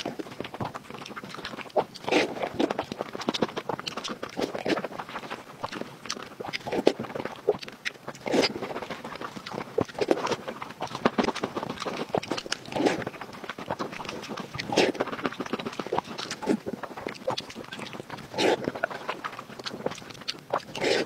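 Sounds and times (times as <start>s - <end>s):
sharp mouth clicks: 0.0s - 13.1s, 13.7s - 21.0s
wet chewing and lip-smacking: 0.0s - 21.0s.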